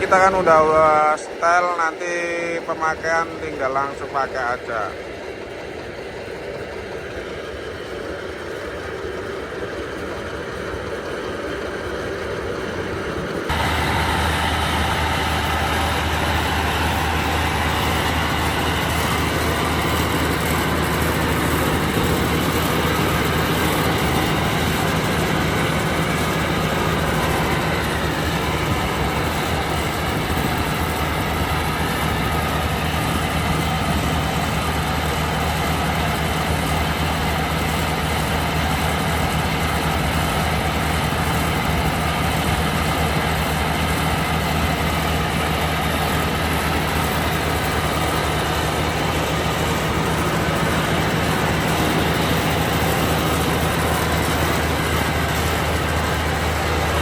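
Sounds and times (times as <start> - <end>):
diesel engine running: 0.0 - 57.0
deep steady hum: 12.6 - 57.0.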